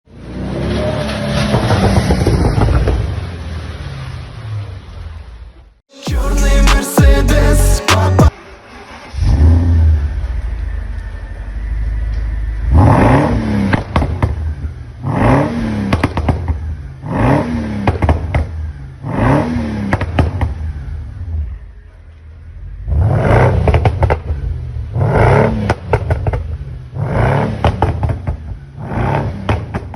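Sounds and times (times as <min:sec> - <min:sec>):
engine revving in blips: 0:06.6 - 0:21.6, 0:22.6 - 0:29.9
exhaust pops and crackles: 0:15.9 - 0:16.6, 0:25.7 - 0:26.6.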